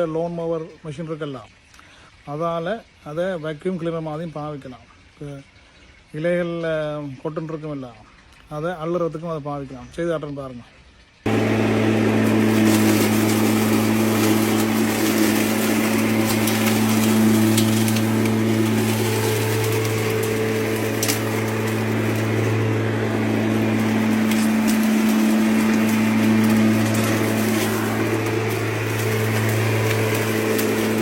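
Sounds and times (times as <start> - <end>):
debris clicking and crackling: 11.3 - 31.0
lawn mower running: 11.3 - 31.0.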